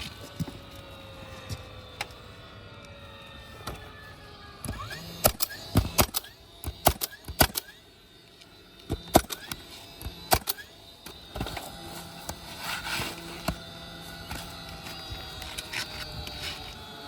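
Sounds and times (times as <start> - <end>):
short rising whirs: 0.0 - 17.0
sharp clicks and knocks: 4.6 - 12.5.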